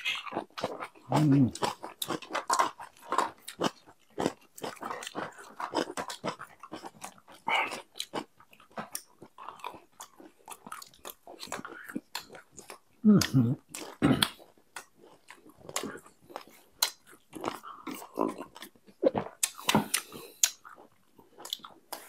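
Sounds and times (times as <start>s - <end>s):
chewing and wet mouth sounds: 0.0s - 22.0s
low voiced sound: 1.1s - 1.6s.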